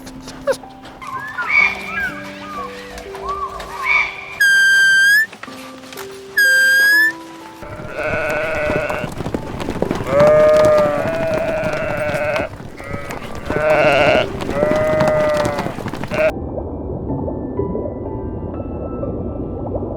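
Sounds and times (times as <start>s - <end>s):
short high whistle-like tone: 6.4s - 7.2s
sheep bleating: 7.6s - 16.3s.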